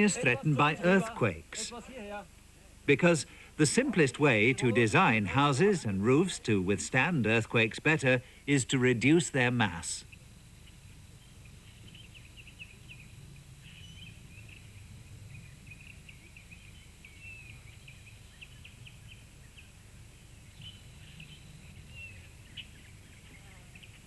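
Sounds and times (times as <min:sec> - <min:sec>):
faint birds chirping: 0:00.0 - 0:24.0
low steady hum: 0:00.0 - 0:24.0.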